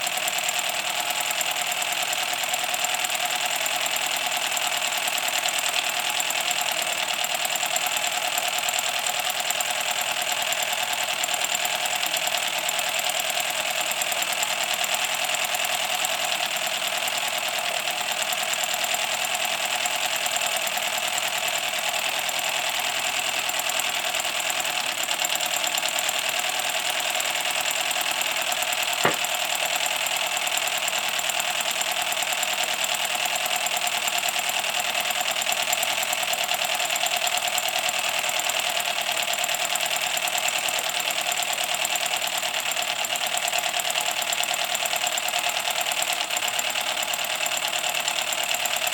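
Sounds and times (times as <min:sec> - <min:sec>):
model steam locomotive running: 0:00.0 - 0:48.9
sharp click: 0:29.0 - 0:29.4.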